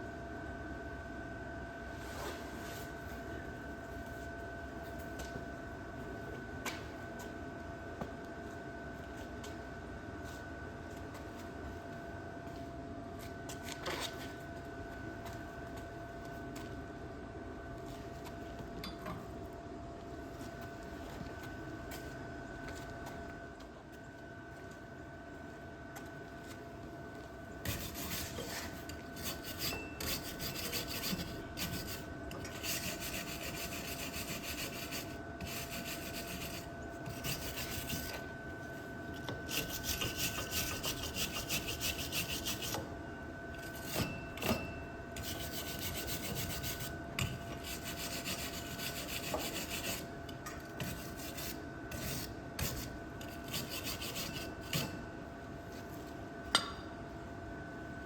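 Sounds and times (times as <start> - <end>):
wire brush rasping on steel: 27.7 - 38.2, 39.5 - 42.8, 45.2 - 50.1, 50.8 - 54.9.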